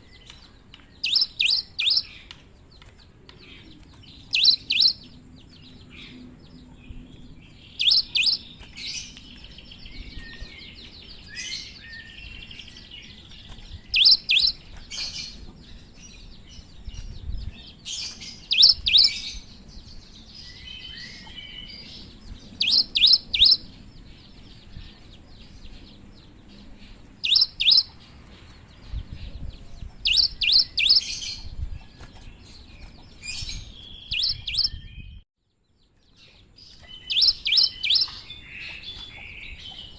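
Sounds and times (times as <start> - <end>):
bird twittering chatter: 0.0 - 35.2, 36.3 - 39.9
bird singing sharp high notes: 1.0 - 2.1, 4.3 - 5.0.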